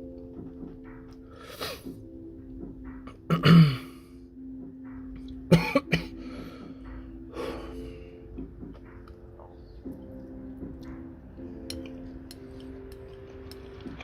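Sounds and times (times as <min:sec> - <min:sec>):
person coughing: 0:03.3 - 0:04.0, 0:05.5 - 0:06.2.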